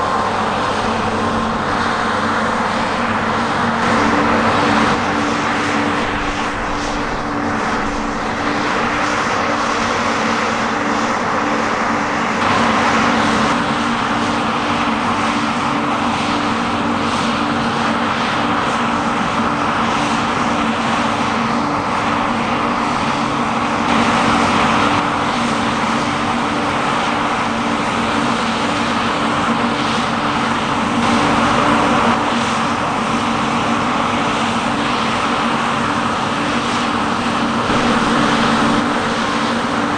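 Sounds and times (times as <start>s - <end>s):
diesel engine hum: 37.2s - 39.9s
machinery mechanical rush: 37.2s - 39.9s.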